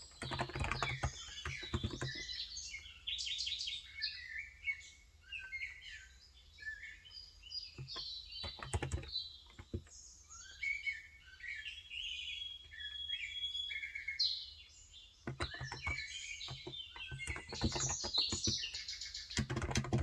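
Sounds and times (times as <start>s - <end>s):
birds chirping: 0.0s - 20.0s
keyboard keystrokes: 0.1s - 2.2s, 7.8s - 9.9s, 15.3s - 20.0s.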